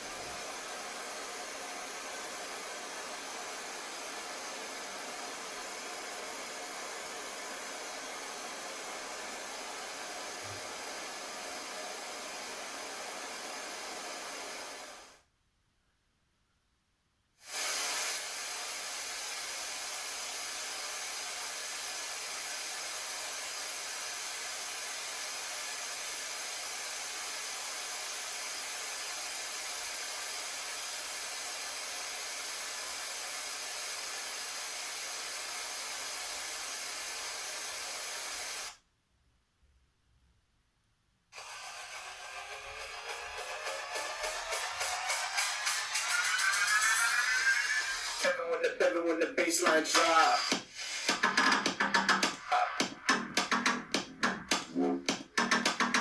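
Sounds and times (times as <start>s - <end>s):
speaker playing white noise hiss: 0.0s - 15.2s, 41.4s - 56.0s.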